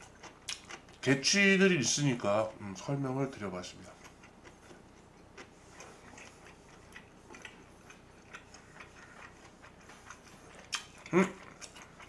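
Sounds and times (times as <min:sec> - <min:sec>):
quiet chewing mouth clicks: 0:00.0 - 0:01.0, 0:05.4 - 0:12.0.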